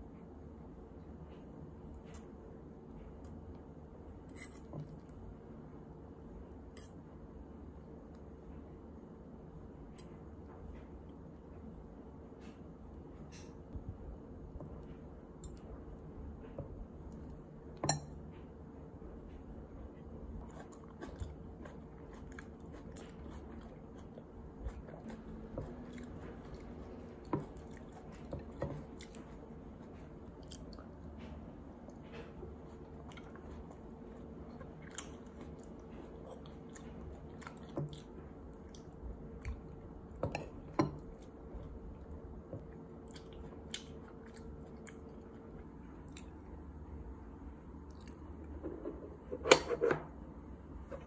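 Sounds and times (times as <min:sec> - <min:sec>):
faint steady hum: 0:00.0 - 0:51.0
chewing and biting: 0:20.2 - 0:39.9, 0:41.0 - 0:46.4.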